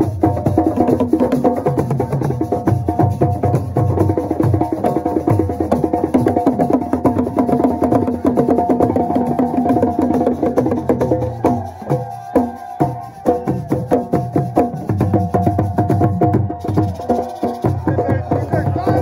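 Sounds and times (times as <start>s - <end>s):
fast drum percussion music: 0.0s - 19.0s.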